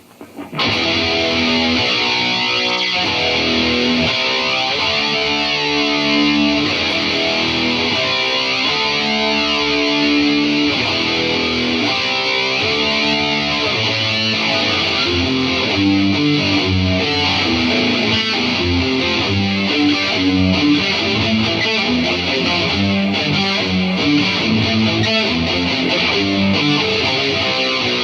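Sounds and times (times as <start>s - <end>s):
distorted electric guitar: 0.0s - 28.0s.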